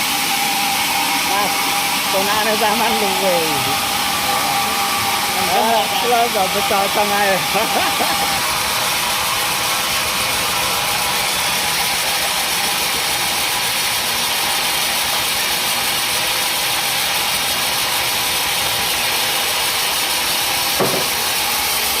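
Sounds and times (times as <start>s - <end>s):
sawmill machinery running: 0.0s - 22.0s
short knock: 20.8s - 21.2s.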